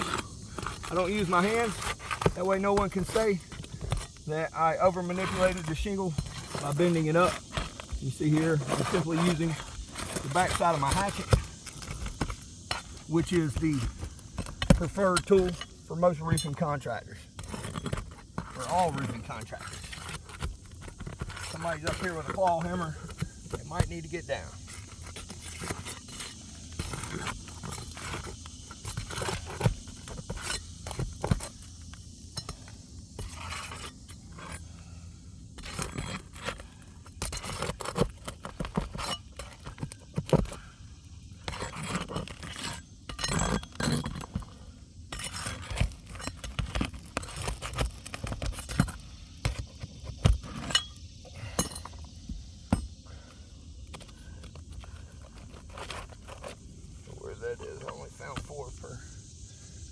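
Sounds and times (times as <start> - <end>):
hatchet scraping under shingles: 0.0 - 59.9
sharp metal clinks: 50.6 - 52.1.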